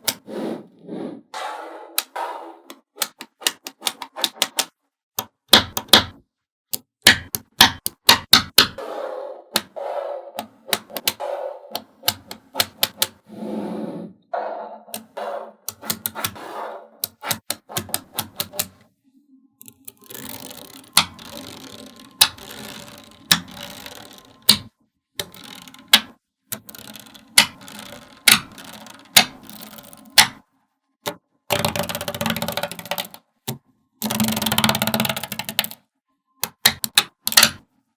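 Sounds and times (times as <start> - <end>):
magnetic balls clicking together: 2.0 - 8.8, 10.4 - 13.2, 14.9 - 16.4, 17.0 - 18.8, 19.6 - 30.4, 31.0 - 35.8, 36.4 - 37.6.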